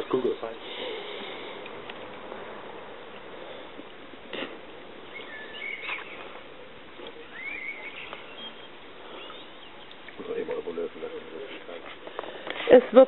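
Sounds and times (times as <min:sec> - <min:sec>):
steady background noise: 0:00.0 - 0:13.0
bird chirps: 0:05.0 - 0:06.4, 0:07.1 - 0:10.4.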